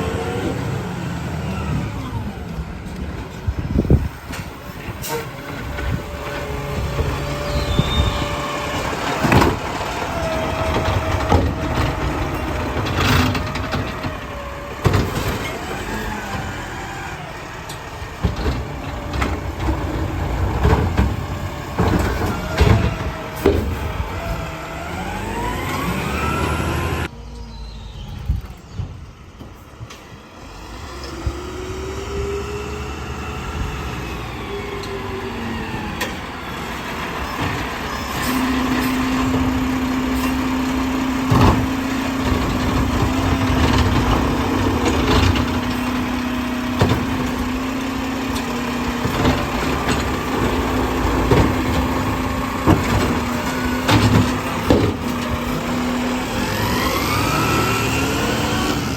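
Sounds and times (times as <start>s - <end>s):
garbage truck engine revving: 0.0s - 27.2s, 30.1s - 58.9s
hydraulics working: 0.0s - 58.9s
metal clanks and knocks: 41.2s - 47.7s, 48.3s - 55.6s.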